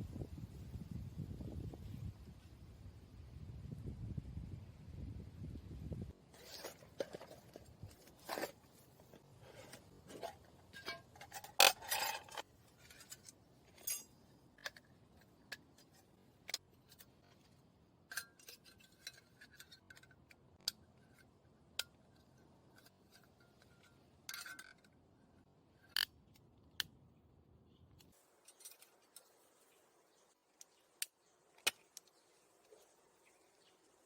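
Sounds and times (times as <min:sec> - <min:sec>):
small objects clicking and tapping: 0:30.6 - 0:32.2.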